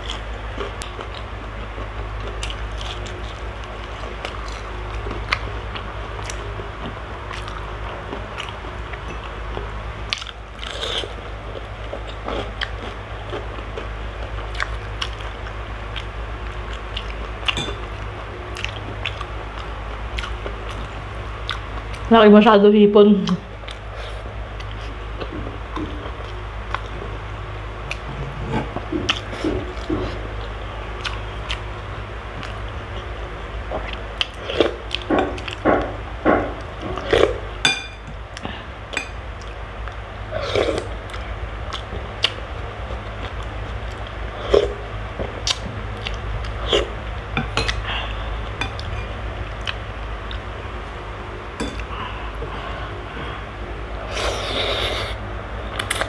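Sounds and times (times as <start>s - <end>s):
chewing and biting crispy food: 0.0s - 22.1s
steady low hum: 0.0s - 56.0s
metal spoon clinking on glass bowl: 17.6s - 17.8s, 37.7s - 38.0s.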